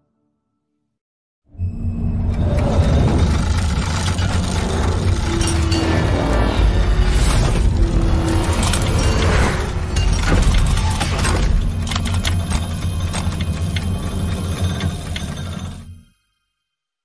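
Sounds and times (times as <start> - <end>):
music: 0.0 - 17.0
deep steady rumble: 1.9 - 15.4
crashes and impacts: 3.0 - 13.6.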